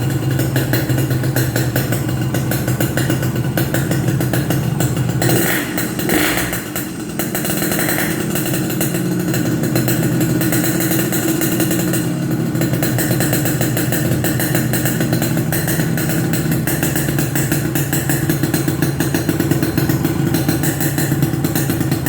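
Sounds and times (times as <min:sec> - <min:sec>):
two-stroke motorcycle engine idling: 0:00.0 - 0:22.0.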